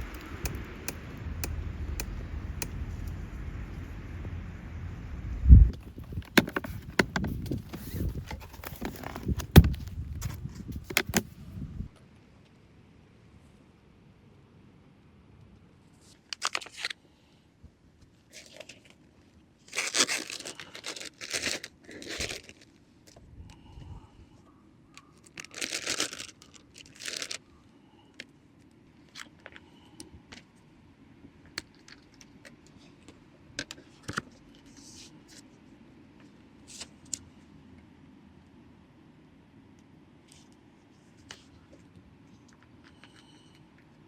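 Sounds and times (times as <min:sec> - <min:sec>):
light clicks and knocks: 0:05.8 - 0:11.3
packaging crinkling and tearing: 0:05.8 - 0:11.3, 0:25.4 - 0:27.4.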